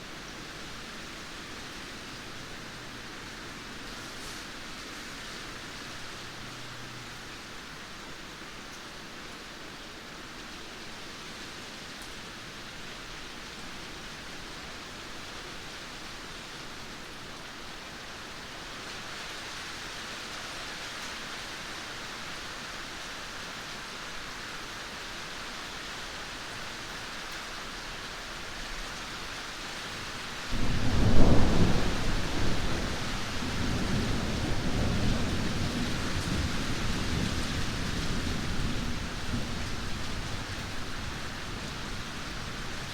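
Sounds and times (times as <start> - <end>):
steady rain falling: 0.0 - 42.9
thunderclap rolling rumble: 30.5 - 42.9.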